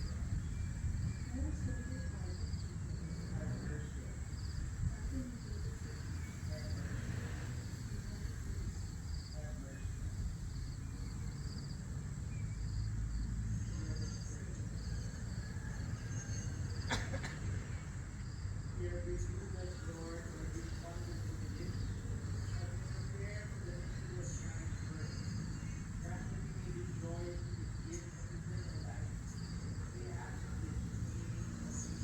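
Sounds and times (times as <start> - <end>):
high insect drone: 0.0 - 17.2
crickets chirping: 0.0 - 32.0.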